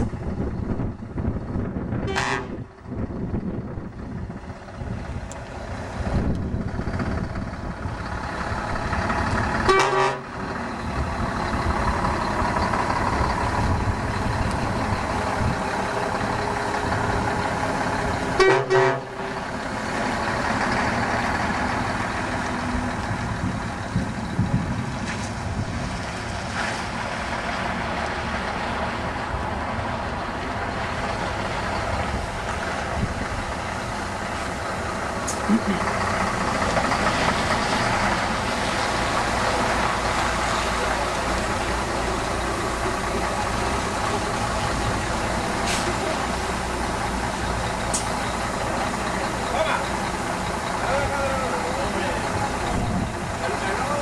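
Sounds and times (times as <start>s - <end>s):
truck engine running: 0.0s - 54.0s
truck horn blasts: 2.0s - 2.7s, 9.6s - 10.4s, 18.3s - 19.5s.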